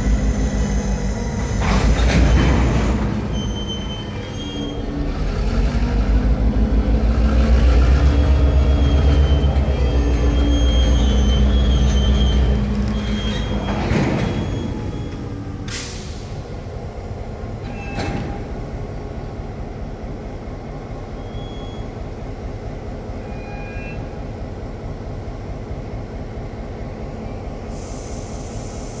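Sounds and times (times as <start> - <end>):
wheel squeal: 0.0 - 5.2, 7.9 - 15.4
diesel locomotive rumbling: 0.0 - 29.0.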